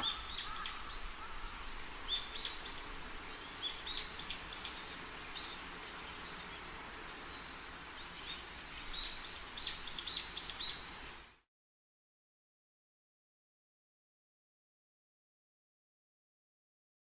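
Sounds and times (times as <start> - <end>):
small birds chirping: 0.0 - 11.4
steady background hiss: 0.0 - 11.5.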